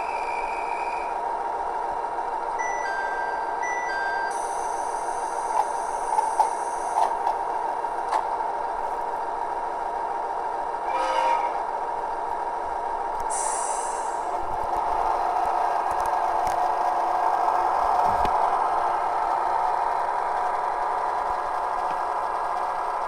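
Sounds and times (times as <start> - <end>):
diesel railcar model hum: 0.0 - 23.0
air hiss: 4.4 - 7.2, 13.3 - 14.4
train horn blast: 10.8 - 11.7.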